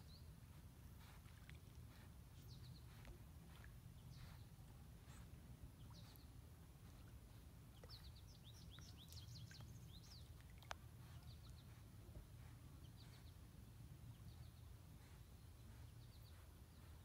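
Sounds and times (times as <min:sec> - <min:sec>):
faint bird chirps: 0:01.9 - 0:11.8, 0:12.4 - 0:13.5.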